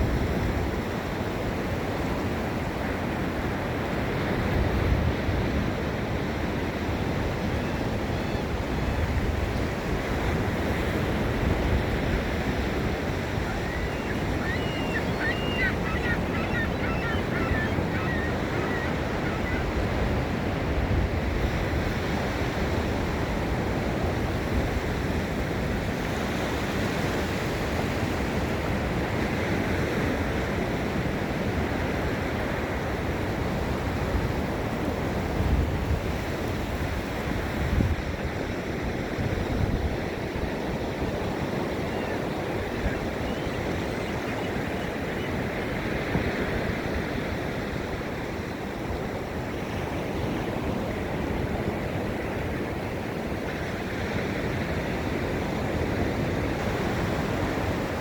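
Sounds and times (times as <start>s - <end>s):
ocean surf breaking on beach: 0.0s - 58.0s.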